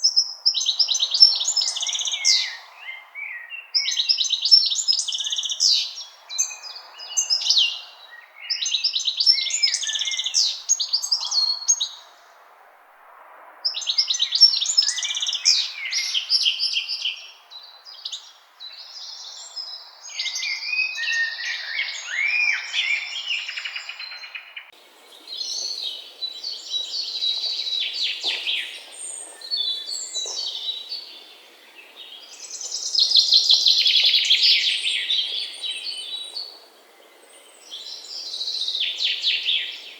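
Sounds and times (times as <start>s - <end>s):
songbirds chirping and trilling: 0.0s - 12.4s, 13.7s - 39.9s.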